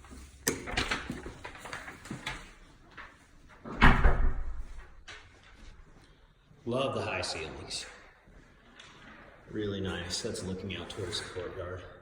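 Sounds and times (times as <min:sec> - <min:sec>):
door thudding shut: 0:03.8 - 0:04.6.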